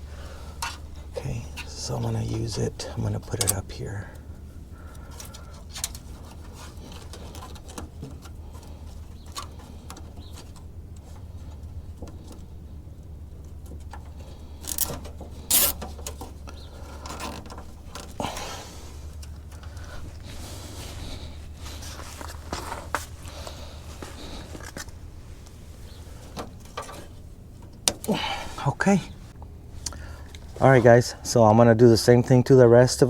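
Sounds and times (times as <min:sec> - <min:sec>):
steady low hum: 0:00.0 - 0:33.0
zip tie clicks and rustles: 0:14.6 - 0:16.2.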